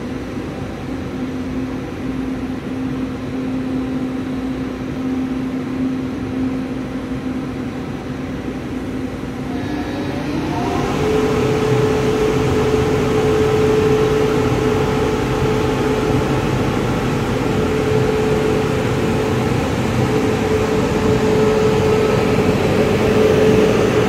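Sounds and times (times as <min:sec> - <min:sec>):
electric train rumbling: 0:00.0 - 0:24.0
traction motor whine: 0:09.4 - 0:24.0.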